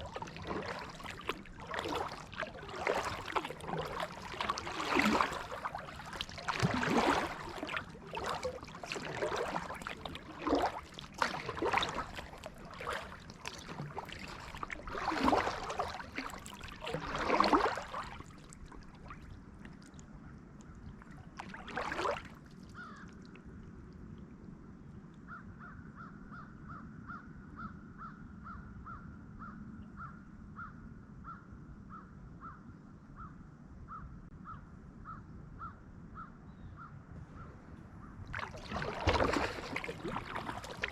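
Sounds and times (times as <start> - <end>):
paddle splashing in water: 0.0 - 19.9, 20.9 - 23.2, 38.3 - 40.9.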